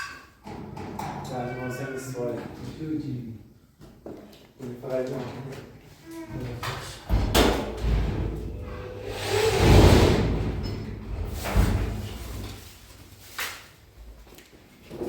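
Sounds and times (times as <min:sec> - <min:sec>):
long scraping slide: 0:08.6 - 0:10.5.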